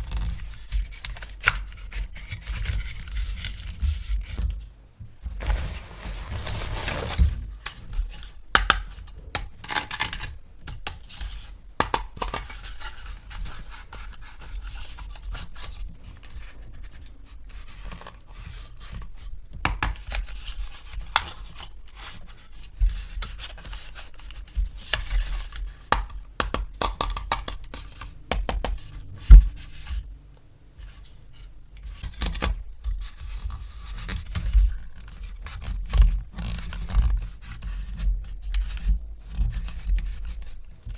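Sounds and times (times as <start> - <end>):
plastic packaging scratching and tearing: 5.4 - 7.9.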